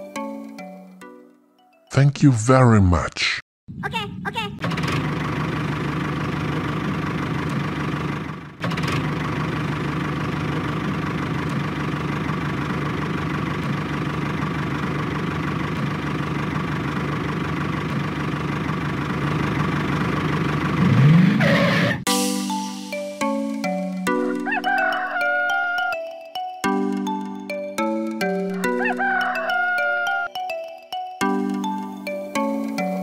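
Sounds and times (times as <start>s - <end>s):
tractor engine idling: 4.6s - 20.9s.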